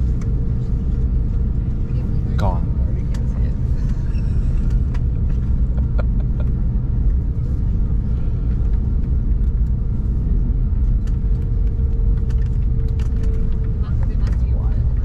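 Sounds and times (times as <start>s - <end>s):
jet cabin rumble: 0.0s - 15.0s.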